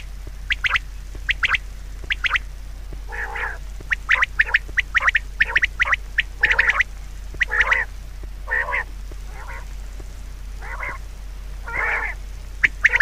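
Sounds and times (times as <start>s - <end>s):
short high bird calls: 0.0s - 2.5s, 3.1s - 7.9s, 8.5s - 9.7s, 10.6s - 11.0s, 11.6s - 13.0s
lower nasal bird calls: 0.0s - 9.8s, 10.5s - 13.0s.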